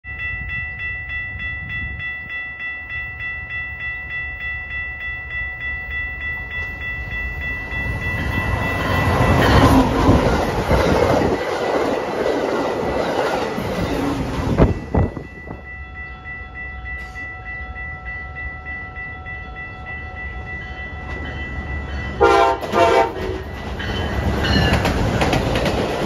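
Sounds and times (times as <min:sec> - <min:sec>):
bell dinging: 0:00.0 - 0:10.2, 0:14.6 - 0:22.5
train rumble and wheel clatter: 0:00.1 - 0:26.0.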